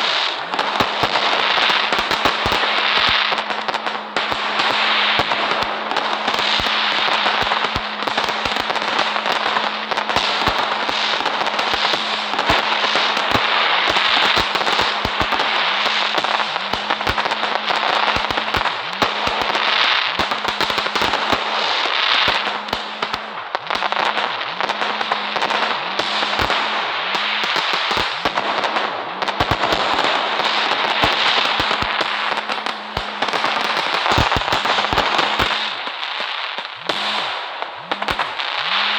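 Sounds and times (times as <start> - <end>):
steady low hum: 0.0 - 36.0
continuous hiss: 0.0 - 38.9
fireworks crackling and popping: 0.0 - 38.9.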